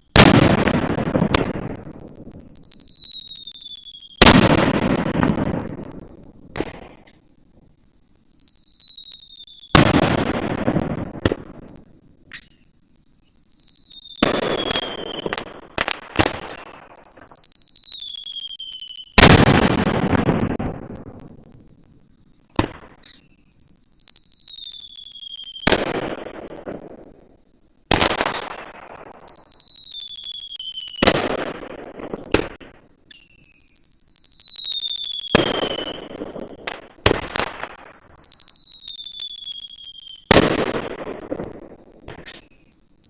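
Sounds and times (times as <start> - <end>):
falling firework whistle: 0.0 - 43.0
firework shells bursting: 34.3 - 42.5.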